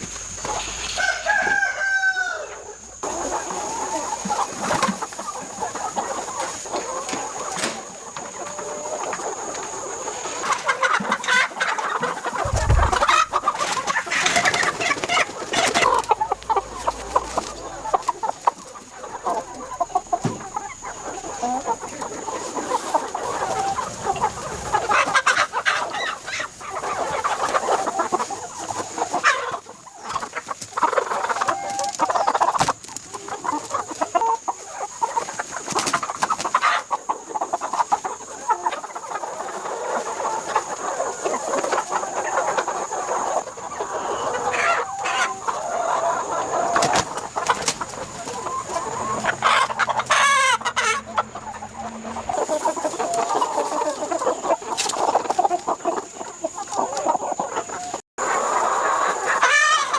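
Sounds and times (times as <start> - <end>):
chickens clucking: 0.0 - 59.9
rooster crowing: 0.2 - 3.1, 14.8 - 22.5.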